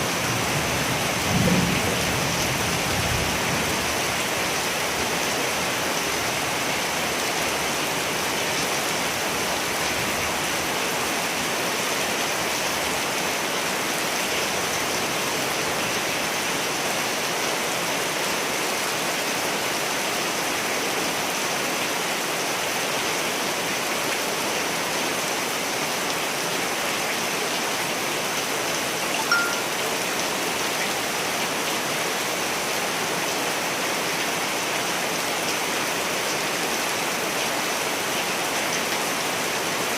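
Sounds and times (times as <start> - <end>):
rain falling: 0.0 - 39.9
sharp high note: 29.2 - 29.9.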